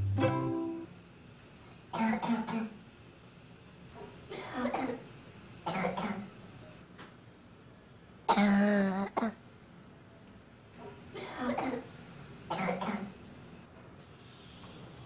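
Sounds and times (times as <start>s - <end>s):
girl coughing: 1.9s - 2.8s, 4.3s - 5.1s, 5.7s - 6.3s, 8.3s - 9.4s, 11.2s - 11.9s, 12.5s - 13.1s.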